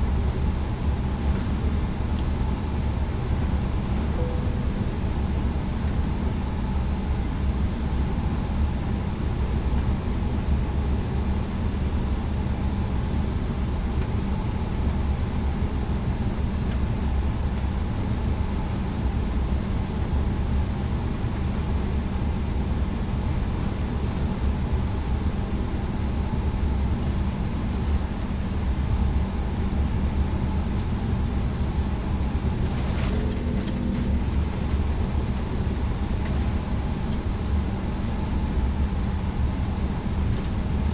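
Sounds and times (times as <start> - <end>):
airplane cabin engine rumble: 0.0 - 40.9
short noise: 4.2 - 5.5.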